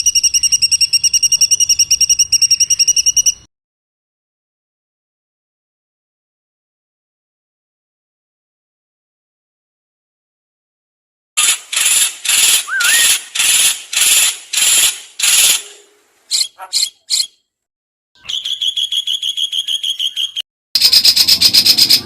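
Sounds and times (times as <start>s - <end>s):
dry rattling bird trill: 0.0s - 3.5s, 11.4s - 17.4s, 18.2s - 22.0s
harsh hissing bird notes: 11.4s - 17.3s
short bird chips: 11.4s - 17.4s.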